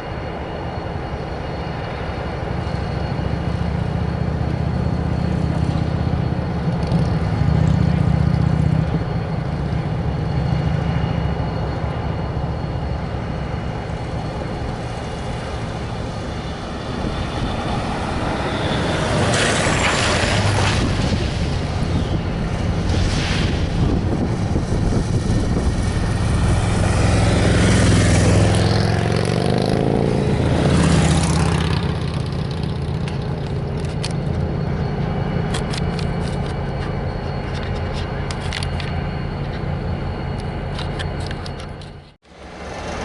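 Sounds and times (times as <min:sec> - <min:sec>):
diesel locomotive engine running: 0:00.0 - 0:43.0.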